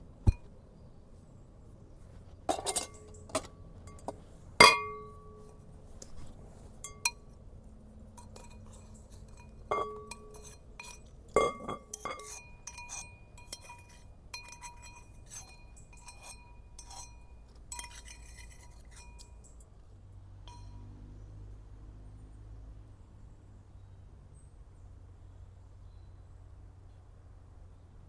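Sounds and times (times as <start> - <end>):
cookware and utensils clinking: 2.5 - 5.1, 8.2 - 19.5.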